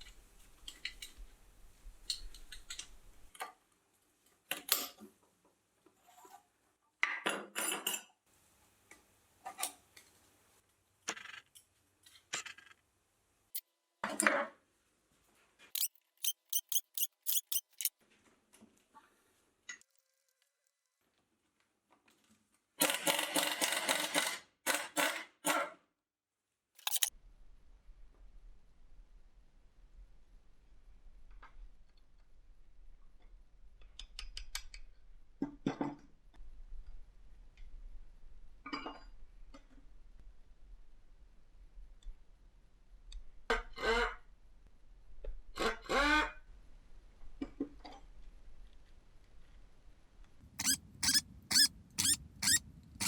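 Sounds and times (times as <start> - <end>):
mechanical rattling and clicking: 15.8 - 17.9, 26.8 - 27.1.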